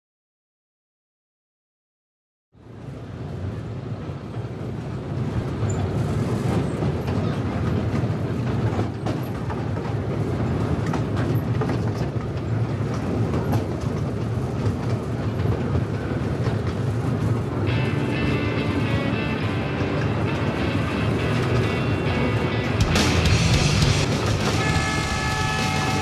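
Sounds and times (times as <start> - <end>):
train cars rumbling: 2.6 - 26.0
wheels clicking over rail joints: 5.4 - 23.3.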